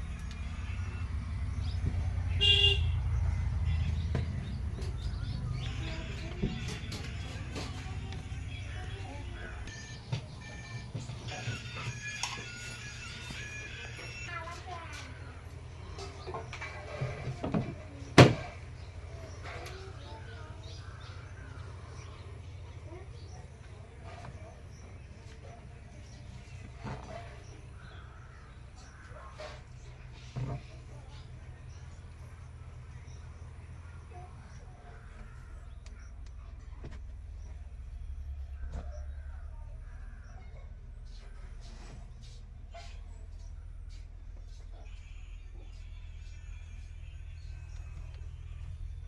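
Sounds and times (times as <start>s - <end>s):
car horn toot: 2.3s - 4.4s, 44.8s - 46.4s
faint bird calls: 18.8s - 32.2s, 33.0s - 45.8s.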